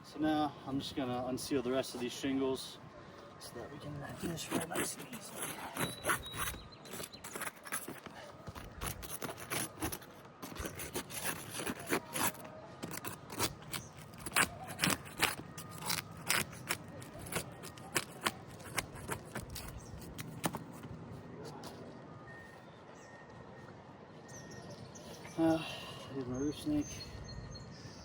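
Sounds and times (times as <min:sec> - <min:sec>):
putty knife scraping roof shingles: 0:04.0 - 0:20.8.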